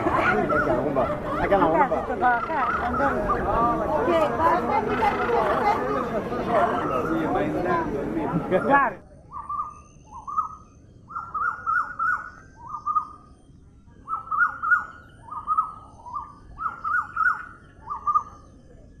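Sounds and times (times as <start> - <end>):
bird calling falling notes: 0.0 - 7.4.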